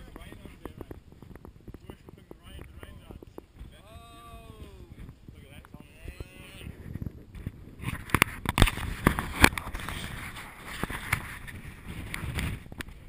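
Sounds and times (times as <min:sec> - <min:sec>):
sharp irregular knocks and thumps: 0:00.0 - 0:03.8
wind noise on microphone: 0:00.0 - 0:13.0.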